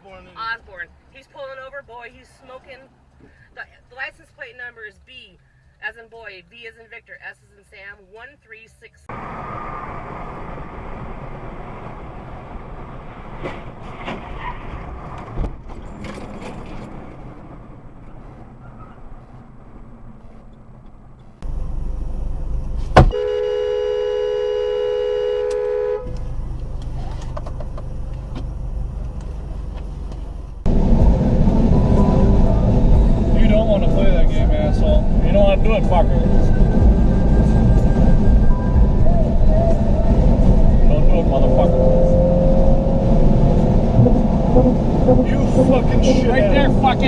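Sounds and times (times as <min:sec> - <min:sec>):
car road and engine noise: 0:00.0 - 0:47.0
car horn: 0:23.0 - 0:26.2, 0:44.0 - 0:47.0
low rumble: 0:27.9 - 0:47.0.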